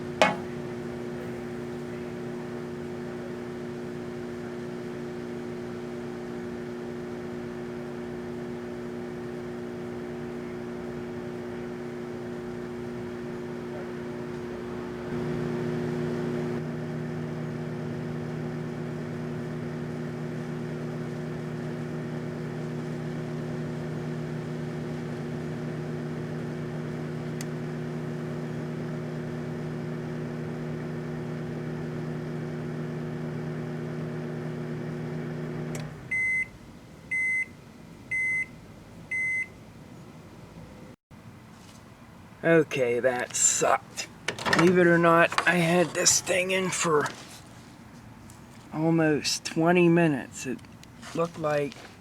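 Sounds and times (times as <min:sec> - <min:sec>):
microwave oven humming: 0:00.0 - 0:40.9, 0:43.4 - 0:47.2
short high microwave beeps: 0:36.1 - 0:39.6.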